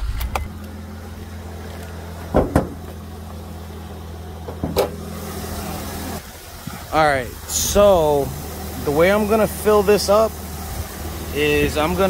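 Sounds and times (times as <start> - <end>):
car engine idling: 0.0 - 12.0
car hood clunks: 1.6 - 3.4, 4.4 - 5.0.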